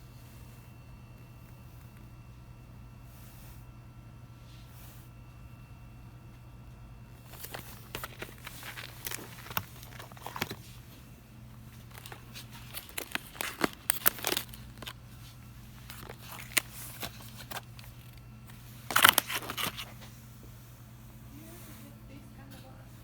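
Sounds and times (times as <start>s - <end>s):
steady low hum: 0.0s - 23.0s
packaging crinkling and rustling: 7.1s - 20.2s.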